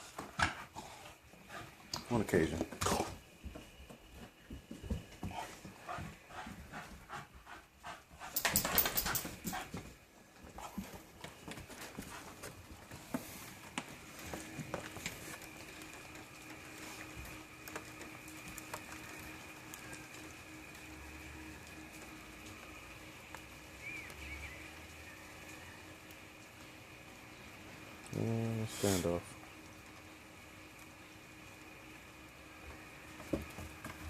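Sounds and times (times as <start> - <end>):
dog panting: 0.1 - 2.1, 5.1 - 13.2.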